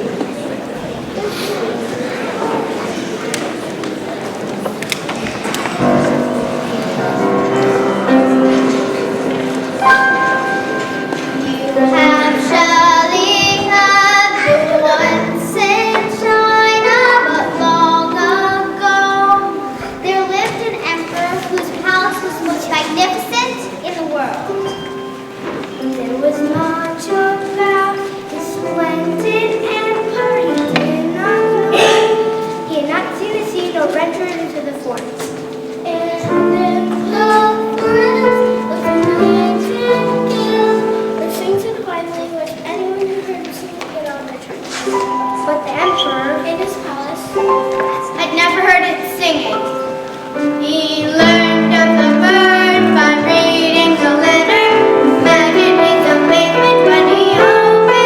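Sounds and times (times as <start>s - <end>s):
instrumental accompaniment: 5.0s - 58.0s
children singing: 5.5s - 43.7s, 44.8s - 58.0s.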